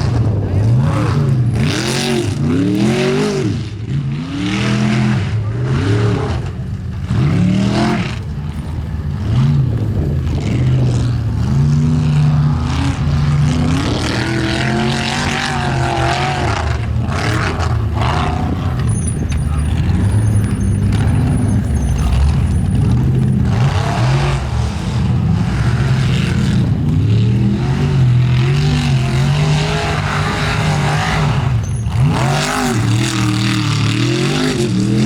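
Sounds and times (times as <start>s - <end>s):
car engine revving hard: 0.0s - 35.0s.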